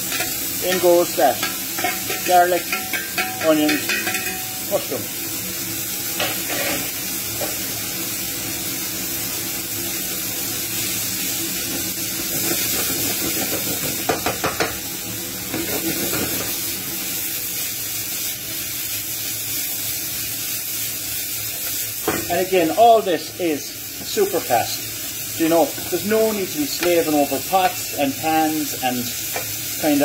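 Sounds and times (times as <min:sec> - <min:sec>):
meat sizzling in a frying pan: 0:00.0 - 0:30.0.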